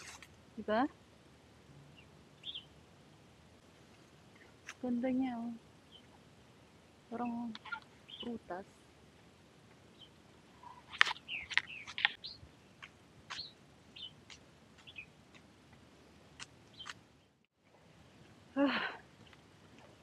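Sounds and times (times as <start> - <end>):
small birds chirping: 1.9 - 2.8, 3.8 - 6.3, 7.1 - 8.7, 9.7 - 15.4, 16.4 - 17.4.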